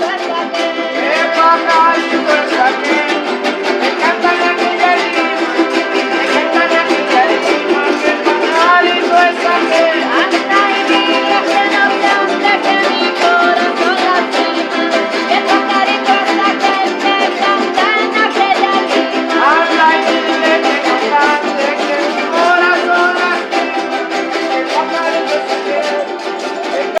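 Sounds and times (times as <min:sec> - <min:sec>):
small guitars strummed together: 0:00.0 - 0:27.0.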